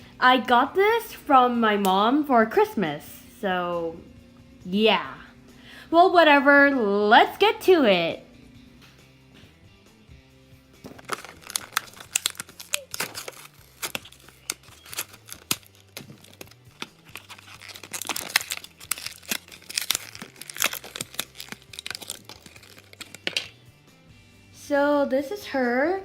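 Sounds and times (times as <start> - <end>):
packaging being torn and crinkled: 10.8 - 23.6.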